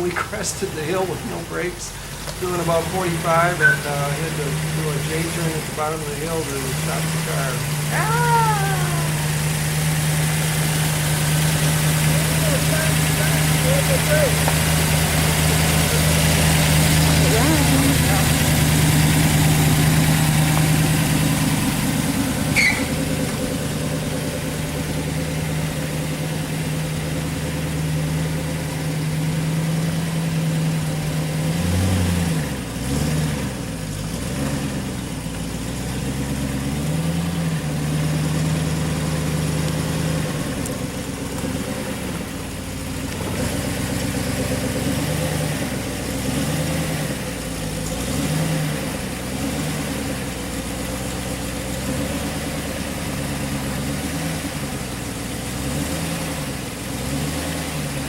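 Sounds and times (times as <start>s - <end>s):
engine revving: 0.0s - 58.0s.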